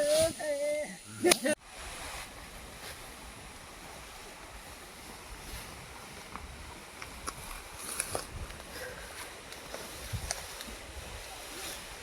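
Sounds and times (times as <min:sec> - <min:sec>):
wind rumbling on microphone: 0:01.6 - 0:12.0.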